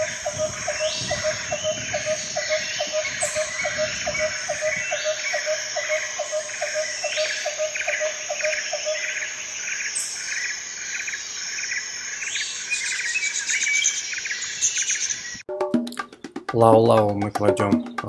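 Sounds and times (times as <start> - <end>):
low-pitched bird notes: 0.0 - 9.4, 13.6 - 18.0
steady insect hiss: 0.0 - 15.4
birds chirping: 0.0 - 18.0.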